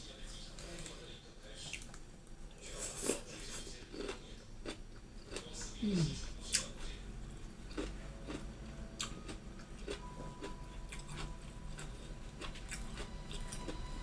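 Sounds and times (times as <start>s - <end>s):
person chewing food: 1.7s - 14.0s.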